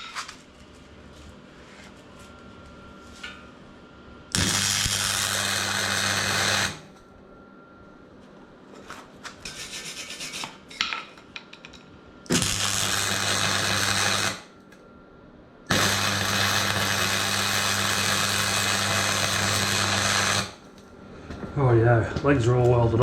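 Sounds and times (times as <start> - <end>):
welder low hum: 0.8 - 7.9, 12.2 - 15.0, 15.6 - 23.0
welder crackling hiss: 4.3 - 6.9, 12.3 - 14.5, 15.7 - 20.8.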